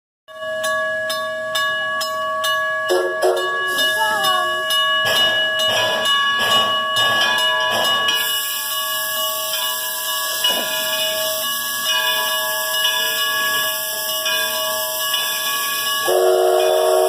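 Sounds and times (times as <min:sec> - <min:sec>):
crossing signal bell ringing: 0:00.3 - 0:17.0
steam locomotive chuffing: 0:02.9 - 0:17.0
hiss of steam: 0:08.2 - 0:12.9.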